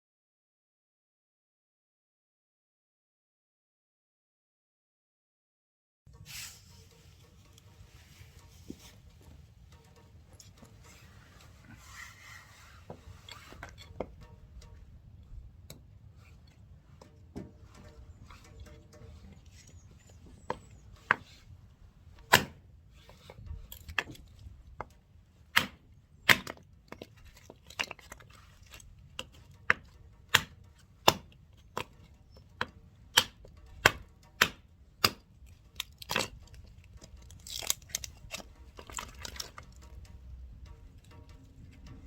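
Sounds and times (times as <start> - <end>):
blade chopping wood: 22.2 - 22.6, 25.5 - 27.2, 29.7 - 32.0, 32.6 - 35.3.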